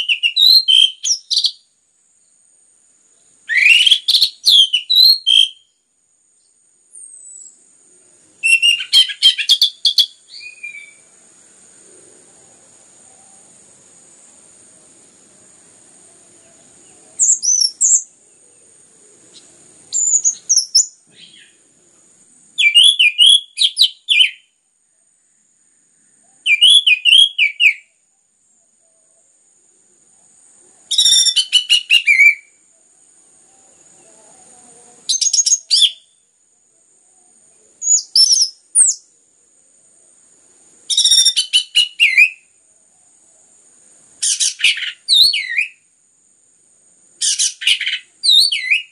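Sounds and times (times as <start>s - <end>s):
thrush singing whistled phrases: 0.0s - 1.6s, 3.4s - 5.8s, 8.4s - 11.1s, 17.2s - 18.1s, 19.9s - 21.6s, 22.6s - 24.5s, 26.4s - 27.9s, 30.9s - 32.6s, 35.1s - 36.2s, 37.8s - 39.0s, 40.9s - 42.5s, 44.2s - 45.8s, 47.2s - 48.9s.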